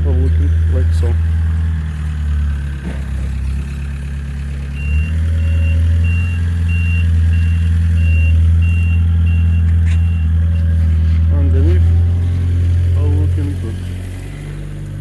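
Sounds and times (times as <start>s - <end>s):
engine idling with deep hum: 0.0s - 15.0s
high electronic beeps: 4.8s - 10.3s.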